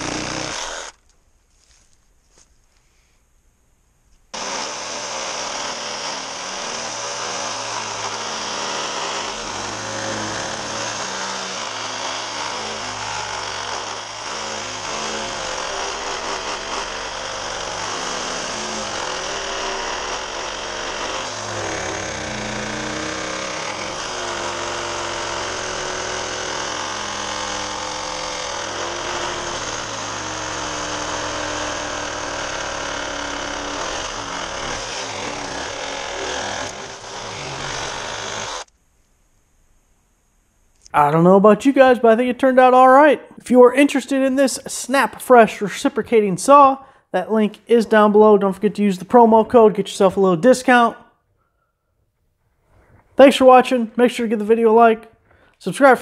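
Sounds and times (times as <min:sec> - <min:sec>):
reciprocating saw running: 0:00.0 - 0:01.0, 0:04.3 - 0:38.7.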